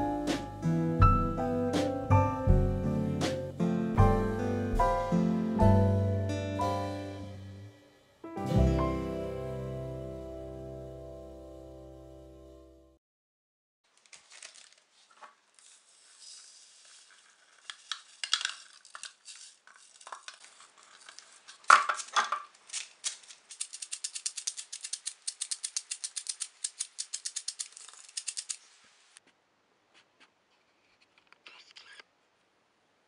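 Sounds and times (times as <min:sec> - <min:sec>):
metal sifter rattling and scraping: 0:15.6 - 0:22.2.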